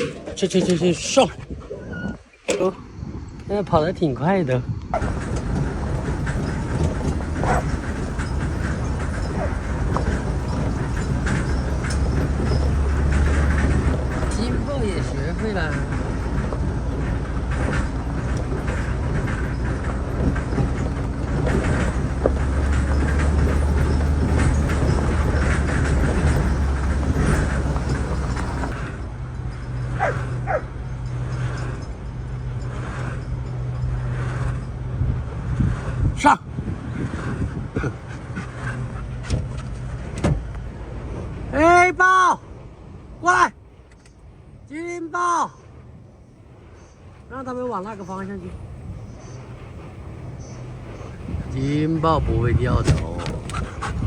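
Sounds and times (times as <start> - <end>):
low rumble: 4.9 - 30.9
cattle hooves knocking on ground: 5.0 - 28.9, 50.8 - 54.0
vehicle engine humming: 5.0 - 35.5, 46.0 - 54.0.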